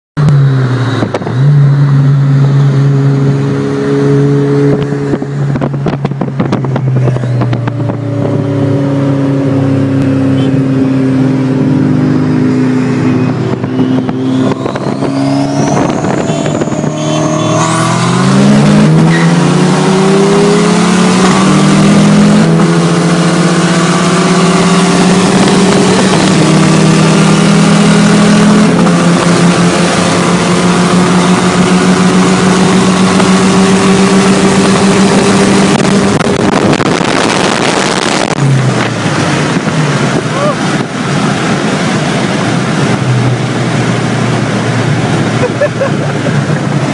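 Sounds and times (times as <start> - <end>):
car engine accelerating hard: 0.2 - 46.9
wind and road noise: 0.2 - 46.9
thin rising whistle: 13.1 - 18.2.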